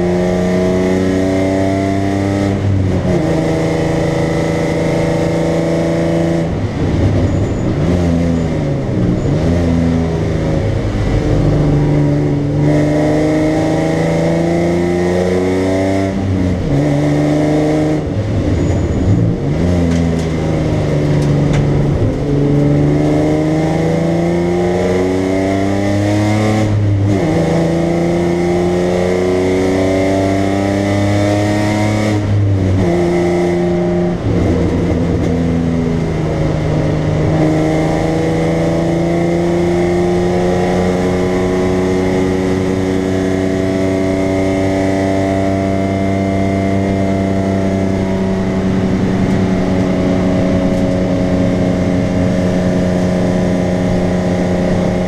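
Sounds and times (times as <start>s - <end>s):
car engine revving: 0.0s - 55.0s
gear changes: 0.0s - 55.0s.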